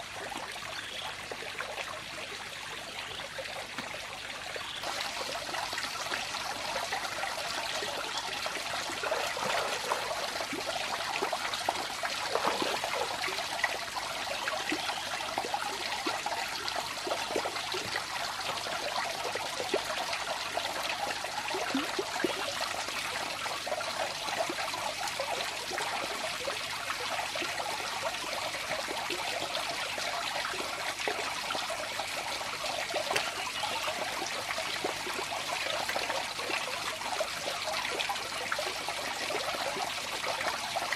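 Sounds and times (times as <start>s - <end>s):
water running and trickling: 0.3s - 22.9s.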